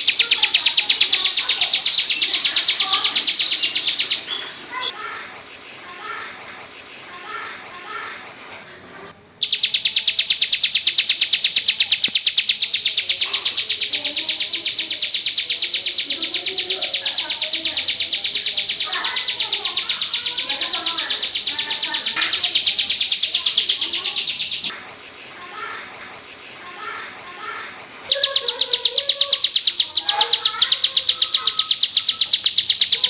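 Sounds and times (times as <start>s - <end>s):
high-pitched rapid bird trill: 0.0s - 4.9s, 9.4s - 24.7s, 26.9s - 33.0s
faint chatter: 0.0s - 33.0s.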